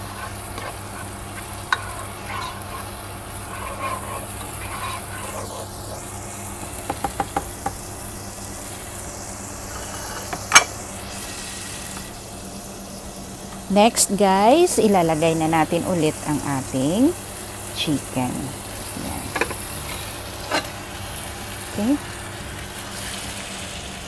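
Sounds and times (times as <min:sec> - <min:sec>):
spatula stirring and scraping: 0:00.0 - 0:07.6, 0:09.6 - 0:10.5
steady low hum: 0:00.0 - 0:23.9
food sizzling in a pot: 0:00.0 - 0:24.0.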